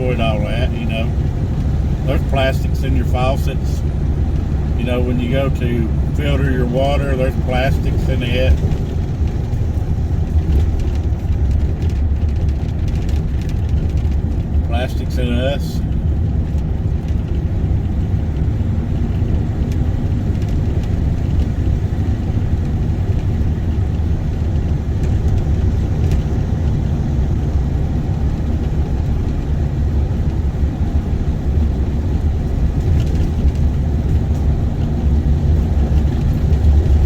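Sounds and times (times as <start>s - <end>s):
car engine and road noise: 0.0s - 37.0s.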